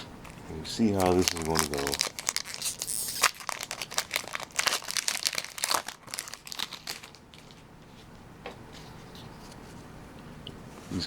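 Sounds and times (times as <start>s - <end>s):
foil wrapper crinkling: 0.2s - 7.6s.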